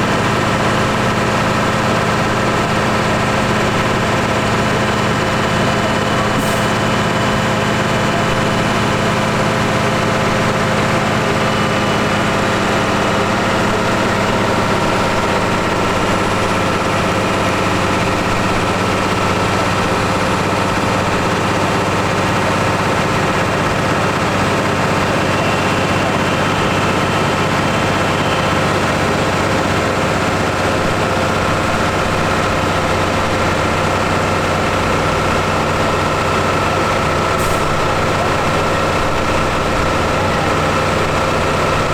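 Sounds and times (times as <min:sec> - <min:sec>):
tractor engine running steadily: 0:00.0 - 0:41.9.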